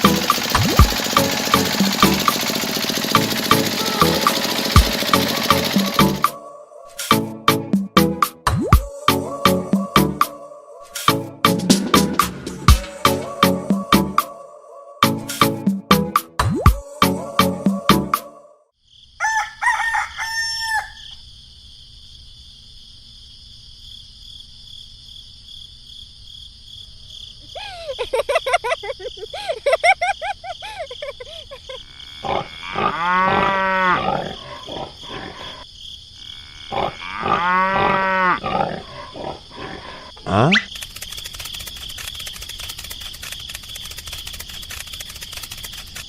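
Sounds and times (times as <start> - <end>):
steady high tone: 0.0 - 7.6
animal cries: 19.2 - 21.1, 30.6 - 35.6, 36.4 - 40.7.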